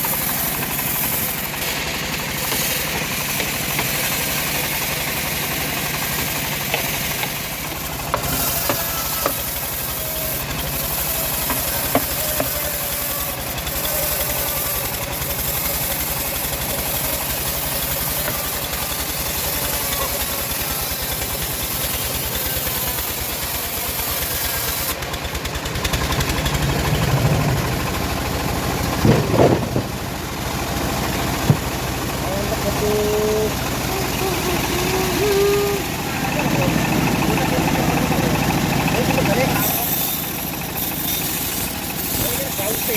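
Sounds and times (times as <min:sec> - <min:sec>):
sawmill engine running: 0:00.0 - 0:42.9
loud knocks: 0:29.0 - 0:30.2, 0:31.4 - 0:31.8.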